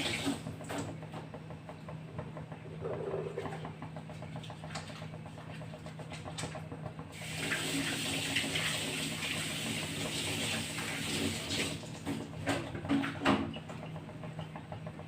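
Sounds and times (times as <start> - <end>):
water running into a sink: 0.0 - 0.4, 7.1 - 12.2.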